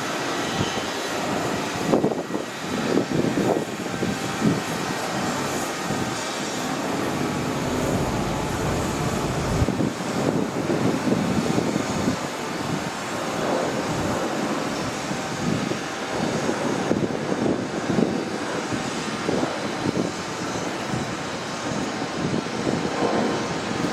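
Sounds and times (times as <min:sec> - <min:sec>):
train rumbling: 0:06.8 - 0:10.4.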